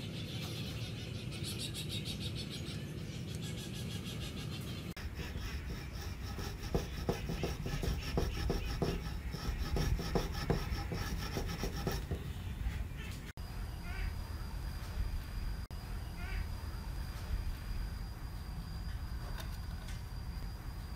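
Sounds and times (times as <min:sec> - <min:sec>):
hand tool working wood: 0:05.0 - 0:12.4.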